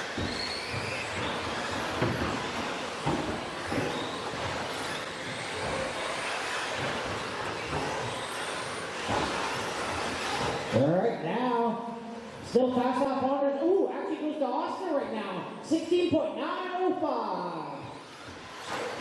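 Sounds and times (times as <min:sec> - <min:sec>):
tyre and track noise: 0:00.0 - 0:11.0, 0:18.0 - 0:19.0.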